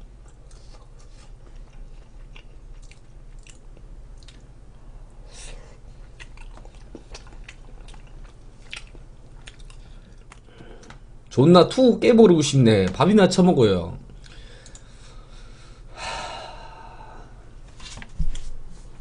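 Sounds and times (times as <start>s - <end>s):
faint steady low hum: 0.0s - 19.0s
chewing and mouth noises: 0.2s - 4.5s, 6.0s - 11.0s.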